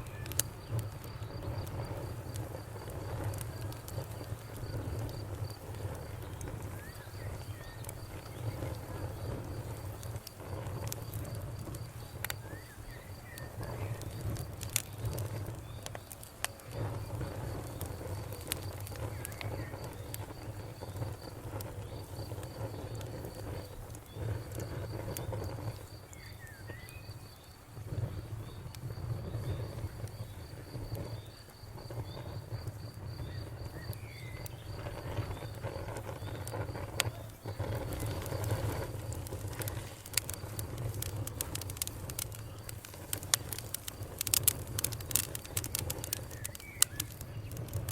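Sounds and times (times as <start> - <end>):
campfire crackling and popping: 0.0 - 47.9
birds chirping: 39.4 - 47.8.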